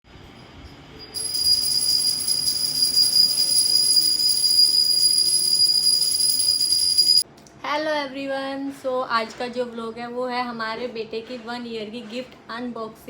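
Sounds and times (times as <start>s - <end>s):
small bells jingling: 1.2s - 7.2s.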